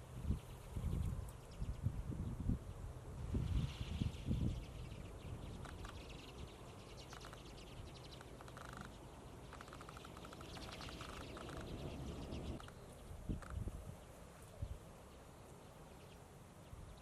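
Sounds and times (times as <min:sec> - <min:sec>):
flock of finches chattering: 0:04.2 - 0:13.7.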